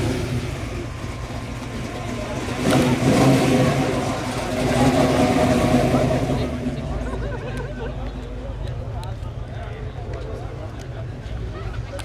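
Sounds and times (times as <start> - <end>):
car engine running: 0.0 - 9.5.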